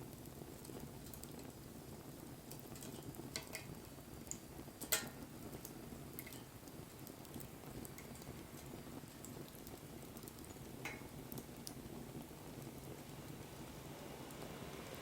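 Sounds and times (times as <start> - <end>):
campfire pops: 0.0 - 15.0
low rush of burning: 6.6 - 15.0.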